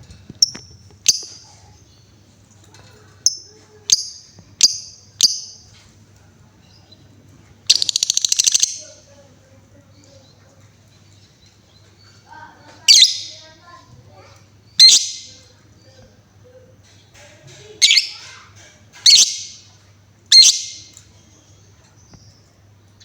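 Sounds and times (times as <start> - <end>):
lovebird chirping and trilling: 0.4 - 2.0, 3.2 - 5.7, 7.7 - 9.0, 12.8 - 13.5, 14.7 - 15.4, 17.8 - 18.4, 19.0 - 19.7, 20.3 - 21.0.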